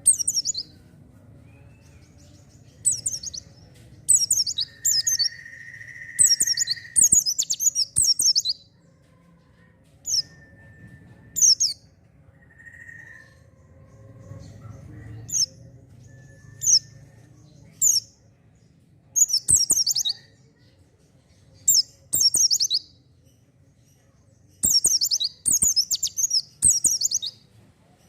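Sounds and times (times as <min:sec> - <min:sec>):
bird twittering: 0:00.0 - 0:00.7, 0:02.8 - 0:03.4, 0:04.1 - 0:08.6, 0:11.3 - 0:11.8, 0:19.2 - 0:20.2, 0:21.7 - 0:22.9, 0:24.6 - 0:27.4.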